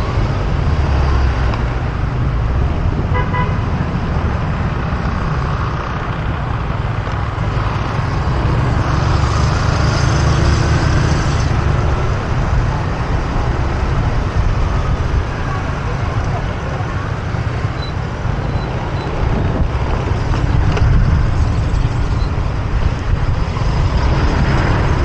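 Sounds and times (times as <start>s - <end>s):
road noise: 0.0s - 25.0s
wind noise: 0.0s - 25.0s
motorbike engine rumble: 11.2s - 25.0s.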